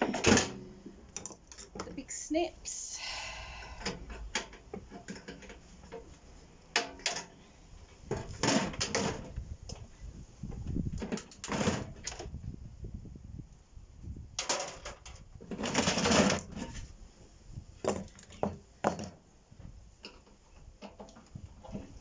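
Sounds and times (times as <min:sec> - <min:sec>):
metal casing clattering and scraping: 0:14.4 - 0:16.8.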